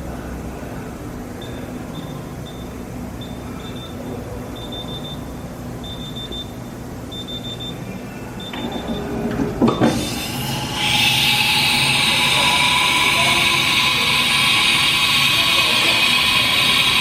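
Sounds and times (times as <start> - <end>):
low machine hum: 0.0 - 17.0
rising whine: 9.9 - 17.0.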